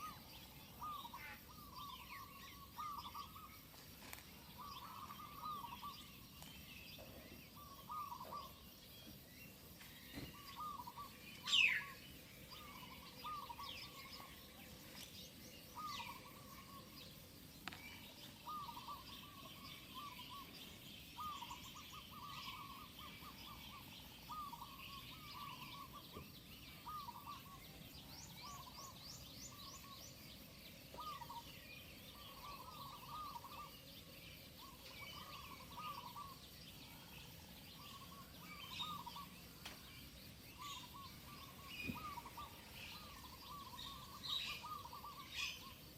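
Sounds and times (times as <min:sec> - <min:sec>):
low bird call: 0:09.8 - 0:14.6, 0:40.5 - 0:45.8.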